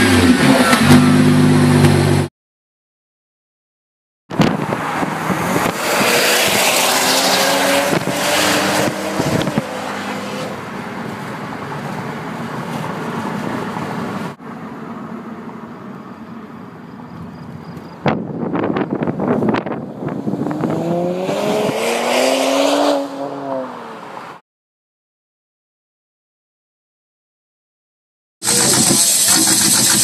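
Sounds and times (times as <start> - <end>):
car engine accelerating: 0.0 - 2.3, 4.4 - 15.5.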